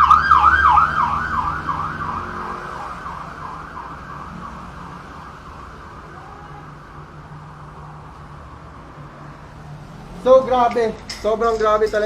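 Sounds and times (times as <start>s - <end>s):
siren yelping: 0.0s - 7.1s.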